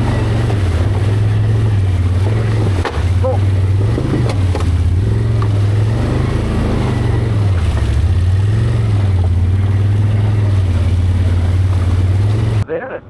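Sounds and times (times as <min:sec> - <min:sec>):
engine revving at low speed: 0:00.0 - 0:12.7.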